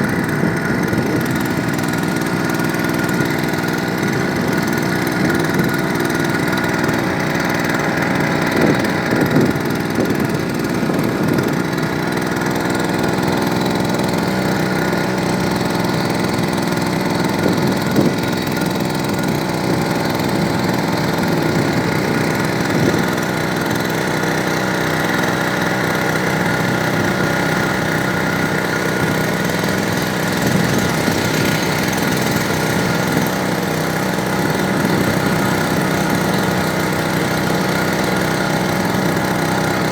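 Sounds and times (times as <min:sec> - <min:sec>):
small engine running steadily: 0:00.0 - 0:39.9.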